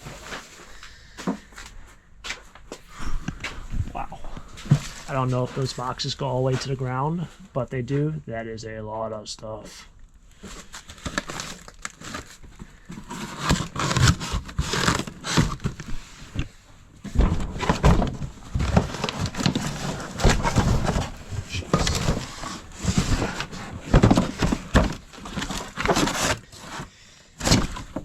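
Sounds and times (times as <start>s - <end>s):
bags and plastic crinkling: 10.3s - 28.0s
knocks and thunks: 17.0s - 25.1s.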